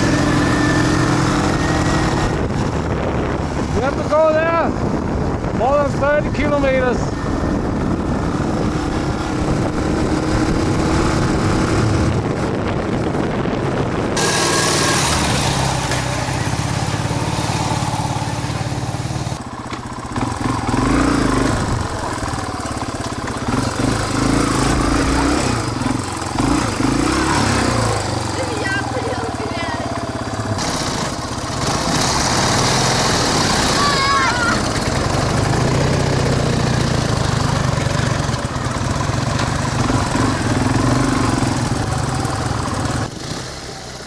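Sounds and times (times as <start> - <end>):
motorcycle engine running: 0.0 - 44.0
road and wind noise: 0.0 - 44.0.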